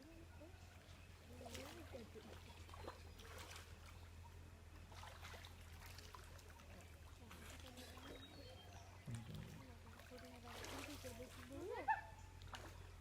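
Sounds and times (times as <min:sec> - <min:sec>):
faint distant voices: 0:00.0 - 0:13.0
steady low hum: 0:08.8 - 0:13.0.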